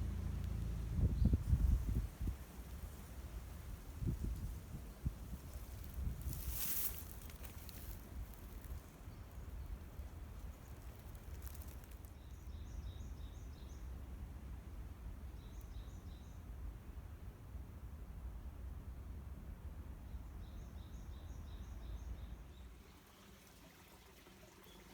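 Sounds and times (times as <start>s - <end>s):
rustle: 0.0s - 17.1s.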